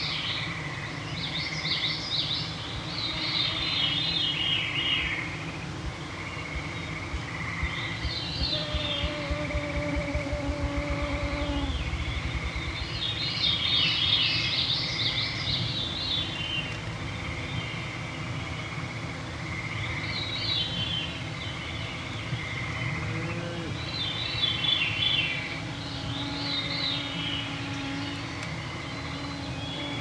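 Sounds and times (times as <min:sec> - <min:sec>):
songbirds singing: 0:00.0 - 0:30.0
mosquitoes whining: 0:07.2 - 0:13.3, 0:22.8 - 0:30.0.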